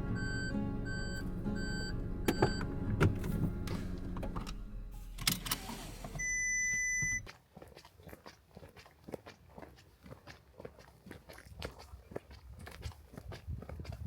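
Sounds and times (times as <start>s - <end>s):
car engine hum: 0.0s - 7.3s
electronic beep: 0.1s - 2.6s, 6.2s - 7.3s.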